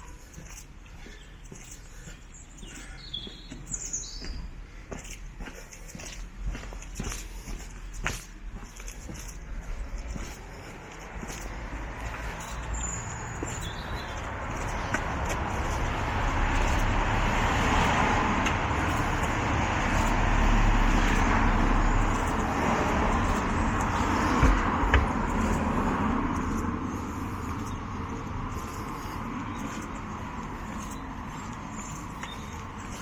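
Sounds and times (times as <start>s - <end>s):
vehicle driving past: 11.1s - 33.0s.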